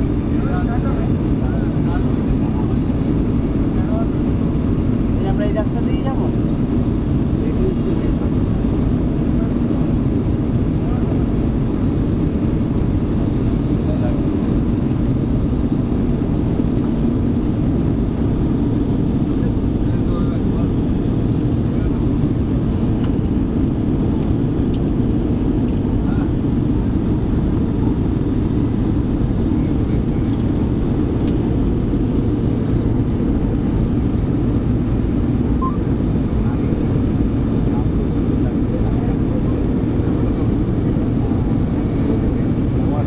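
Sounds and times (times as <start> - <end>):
airliner cabin engine rumble: 0.0 - 43.0.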